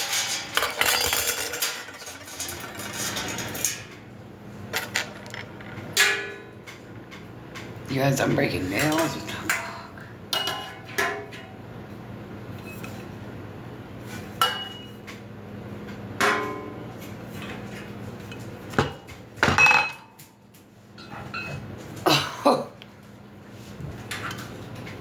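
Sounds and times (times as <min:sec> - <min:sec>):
metal grill parts clanking: 0:00.0 - 0:09.7.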